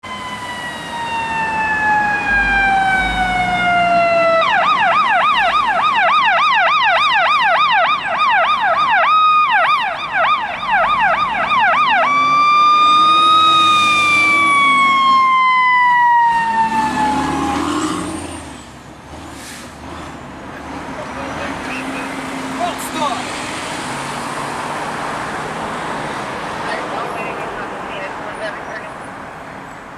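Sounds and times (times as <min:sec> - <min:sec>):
fire engine siren: 0:00.0 - 0:18.5.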